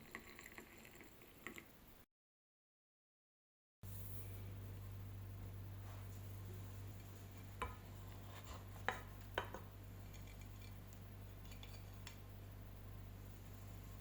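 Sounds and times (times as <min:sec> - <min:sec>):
steady low hum: 0:03.8 - 0:14.0.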